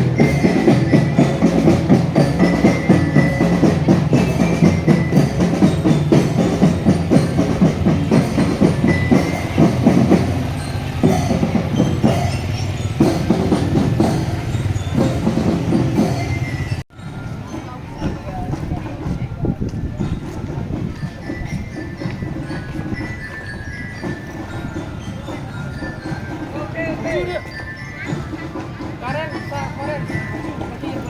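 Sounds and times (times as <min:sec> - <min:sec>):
snare and bass drums: 0:00.0 - 0:16.8
high melodic notes: 0:00.0 - 0:19.1.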